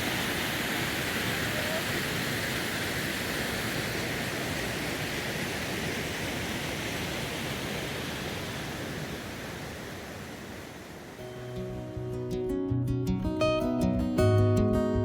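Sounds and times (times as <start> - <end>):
steady rushing water or wind: 0.0 - 12.2
acoustic guitar music: 11.2 - 15.0.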